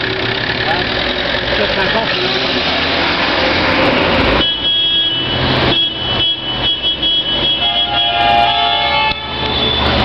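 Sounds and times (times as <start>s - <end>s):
old vehicle engines running: 0.0s - 4.4s.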